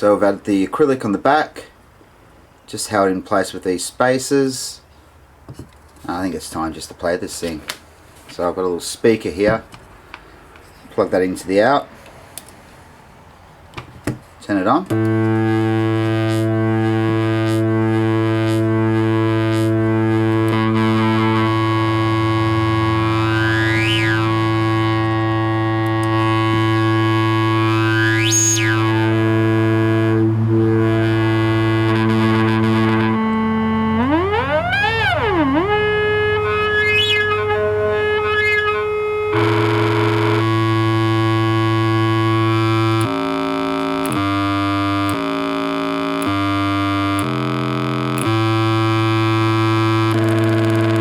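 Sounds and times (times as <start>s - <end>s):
buzzy synthesizer drone: 14.9s - 51.0s.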